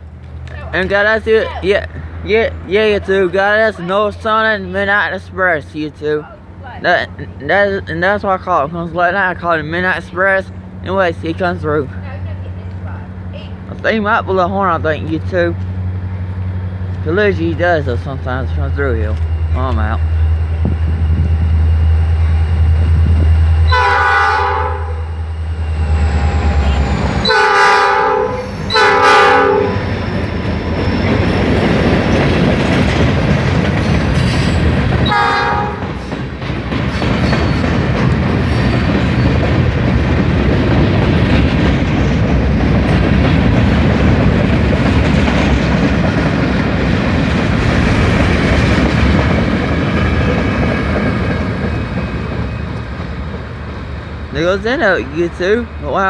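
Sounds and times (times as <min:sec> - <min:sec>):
freight cars rumbling and clacking: 0:00.0 - 0:24.0, 0:24.9 - 0:56.0
diesel locomotive engine droning: 0:00.0 - 0:56.0
train air horn: 0:23.6 - 0:25.2, 0:26.5 - 0:29.9, 0:35.0 - 0:35.9.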